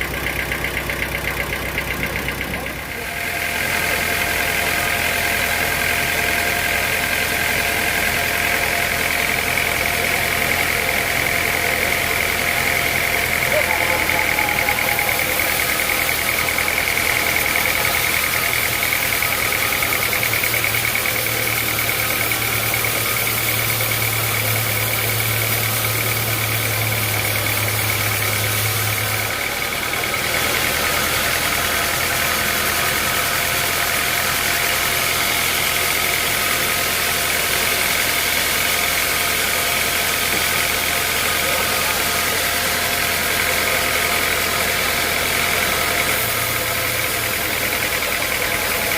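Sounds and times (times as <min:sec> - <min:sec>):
sawmill machinery drone and whine: 0:00.0 - 0:48.9.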